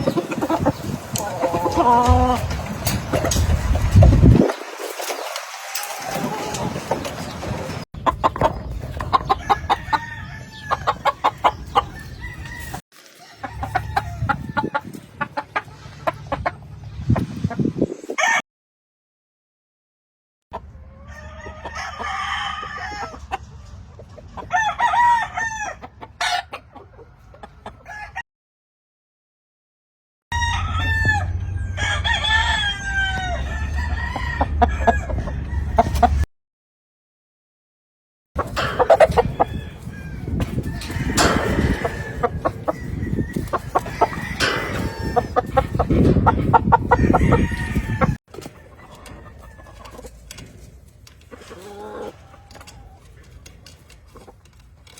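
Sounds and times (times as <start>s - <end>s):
roosters crowing: 0.0s - 4.4s, 9.1s - 14.9s, 20.8s - 23.4s, 24.4s - 26.5s, 30.4s - 36.2s, 38.4s - 50.2s
chickens clucking: 0.0s - 18.3s, 20.5s - 28.2s, 32.4s - 36.3s, 38.4s - 54.9s
rooster crowing: 21.0s - 23.1s, 30.4s - 36.0s, 42.8s - 45.4s, 46.8s - 48.2s.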